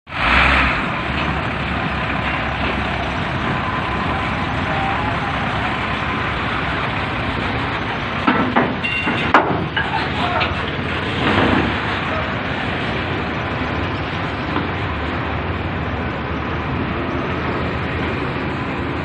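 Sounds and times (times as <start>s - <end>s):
heavy trucks rumbling: 0.0s - 19.0s
sharp knocks: 8.2s - 9.8s.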